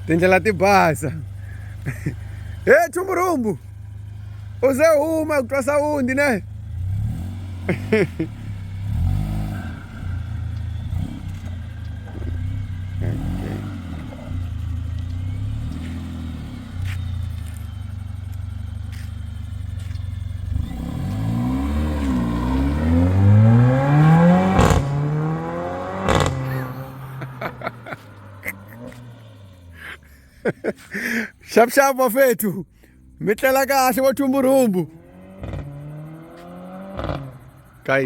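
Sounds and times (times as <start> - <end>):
car engine revving: 0.0 - 31.3, 32.9 - 38.0
exhaust cracks and pops: 35.4 - 35.8, 37.0 - 37.4.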